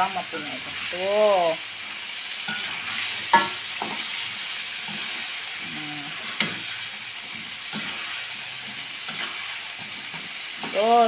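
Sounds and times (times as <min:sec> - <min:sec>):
chicken sizzling in sauce: 0:00.0 - 0:11.0
spatula stirring in wok: 0:00.1 - 0:10.8
spatula knocking on pan: 0:03.3 - 0:04.0.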